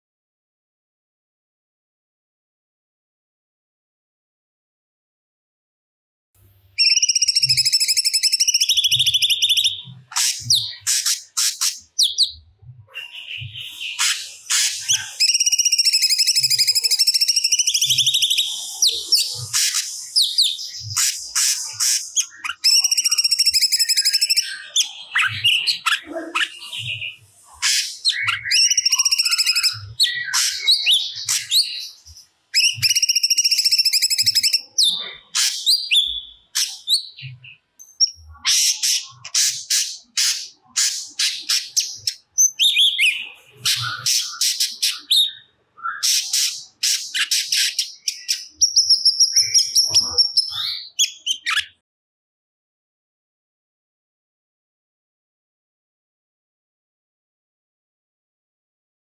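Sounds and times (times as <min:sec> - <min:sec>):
bird warbling song: 0:06.8 - 0:51.8.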